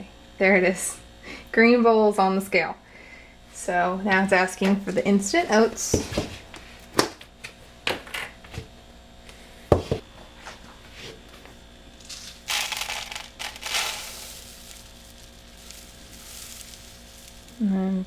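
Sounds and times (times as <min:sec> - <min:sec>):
dry oats pouring: 0:12.0 - 0:17.6.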